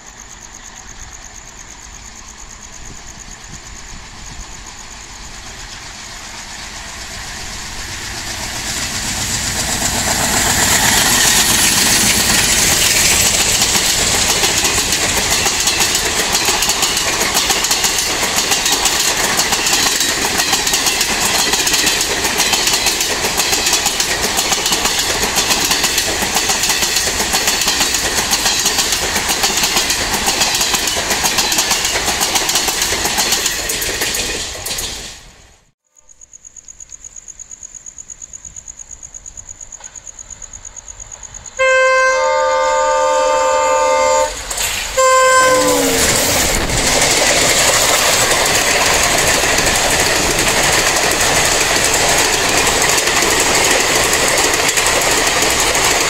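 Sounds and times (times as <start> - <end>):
train wheels rumbling: 0.0 - 35.8, 39.4 - 56.0
locomotive horn: 41.6 - 46.7.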